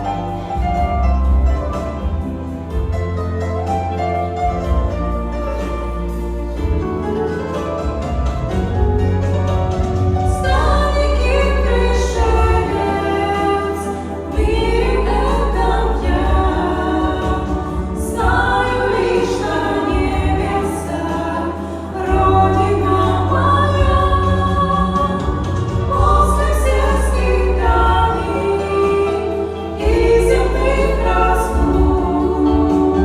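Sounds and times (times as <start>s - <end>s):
held low bass notes: 0.0s - 29.1s
women singing in harmony: 10.2s - 33.0s.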